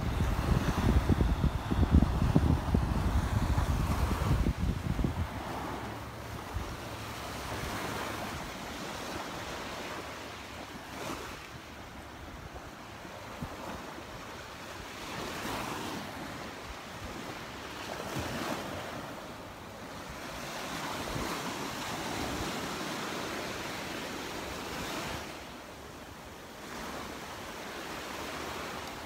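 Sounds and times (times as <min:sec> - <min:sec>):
wind buffeting microphone: 0:00.0 - 0:10.0
surf breaking on beach: 0:00.0 - 0:29.0.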